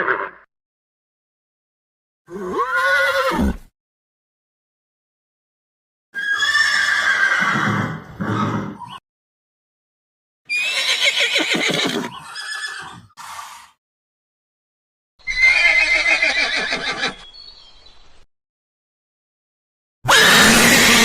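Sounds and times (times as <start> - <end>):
horse whinnying: 2.3 - 3.6, 6.2 - 9.0, 10.5 - 13.1, 15.2 - 17.2, 20.1 - 21.0.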